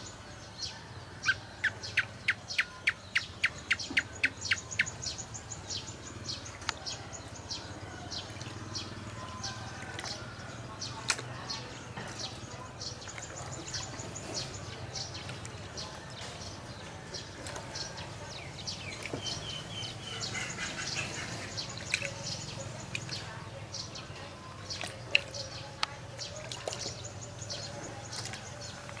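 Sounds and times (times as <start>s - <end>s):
small animals chirping and clicking: 20.4s - 23.9s.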